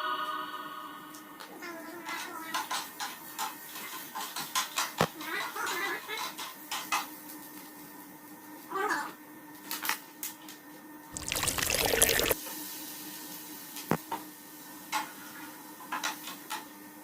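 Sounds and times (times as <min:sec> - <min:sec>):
liquid pouring: 0:11.2 - 0:12.4.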